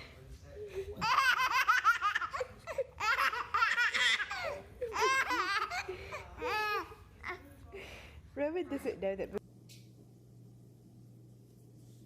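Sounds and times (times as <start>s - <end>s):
baby laughing: 0.9s - 7.4s.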